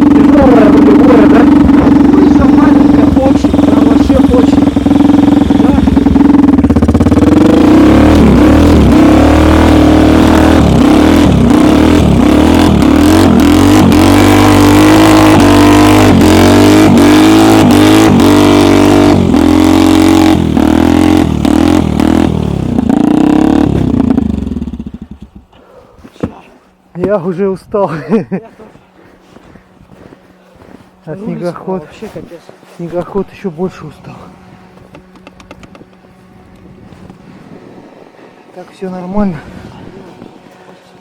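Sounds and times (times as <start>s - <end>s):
snowmobile engine running hard: 0.0s - 41.0s.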